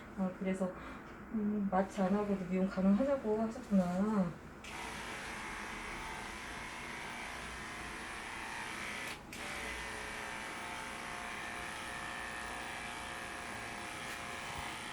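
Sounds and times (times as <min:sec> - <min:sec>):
electric clippers running: 0:04.7 - 0:14.9.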